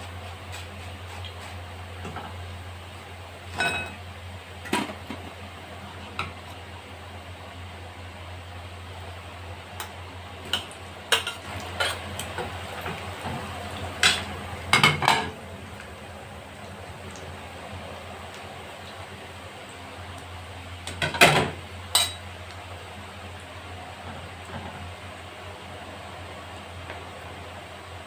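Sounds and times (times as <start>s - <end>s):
metal utensil clinking on pan: 21.9s - 22.2s.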